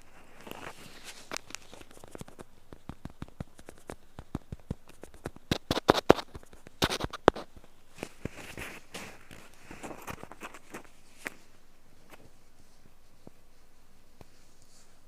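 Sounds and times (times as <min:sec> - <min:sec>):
ear tool scraping earwax: 0:04.9 - 0:07.5.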